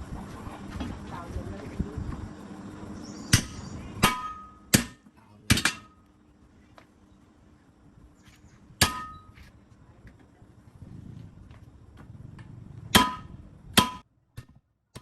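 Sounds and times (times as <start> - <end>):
hammer striking metal: 3.3 - 6.0, 8.8 - 9.4, 12.9 - 15.0.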